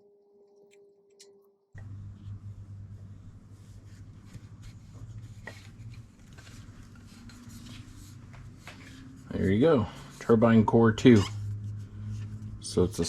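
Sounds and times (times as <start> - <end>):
steady low hum: 1.8 - 13.0
hands scraping metal: 10.2 - 12.8.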